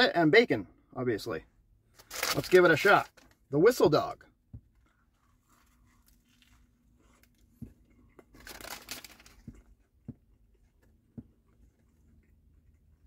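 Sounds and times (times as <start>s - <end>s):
chewing crunchy food: 4.8s - 9.9s.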